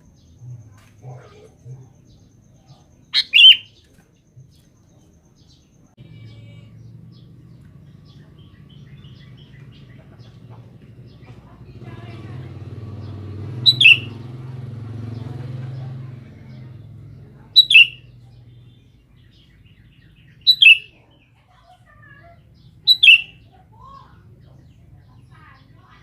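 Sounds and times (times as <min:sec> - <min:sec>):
bulbul two-note calls: 0:13.7 - 0:14.2.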